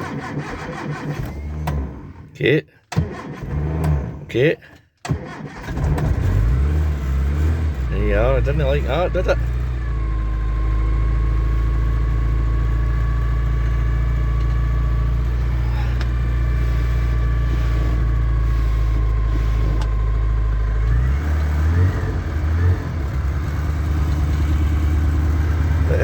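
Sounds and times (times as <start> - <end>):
car engine running fast: 5.6 - 26.0
steady engine whine: 5.6 - 26.0.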